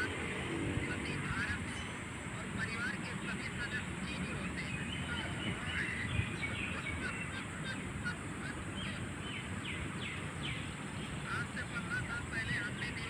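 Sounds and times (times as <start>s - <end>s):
birds downward-sliding calls: 2.6s - 13.0s.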